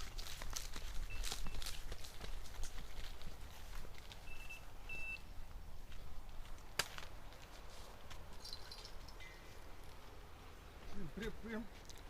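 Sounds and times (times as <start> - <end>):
short high-pitched beep: 4.3 - 5.2.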